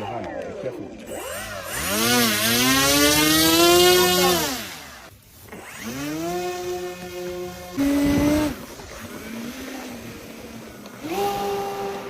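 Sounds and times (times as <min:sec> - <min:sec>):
small aircraft engine revving: 0:01.0 - 0:12.0.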